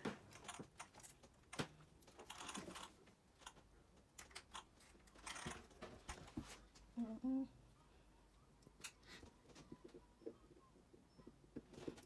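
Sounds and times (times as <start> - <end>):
small parts clicking and scraping: 0.3 - 5.8.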